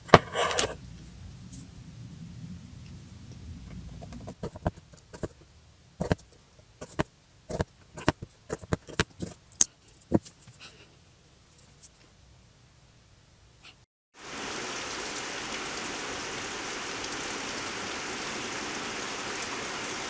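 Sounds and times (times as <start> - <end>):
low hum: 0.6 - 6.0.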